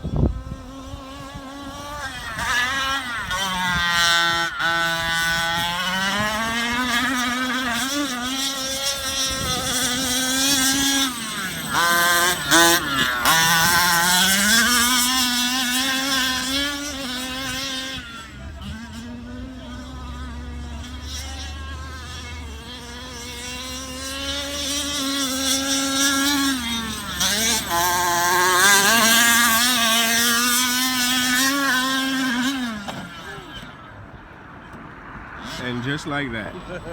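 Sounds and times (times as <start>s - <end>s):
two-stroke engine buzzing: 0.0s - 36.9s.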